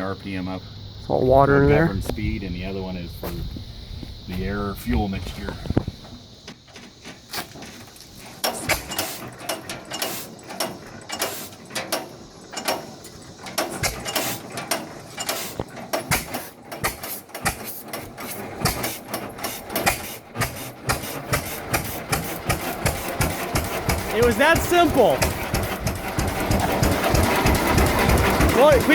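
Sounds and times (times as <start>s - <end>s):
engine clicking and clattering: 6.4s - 28.9s.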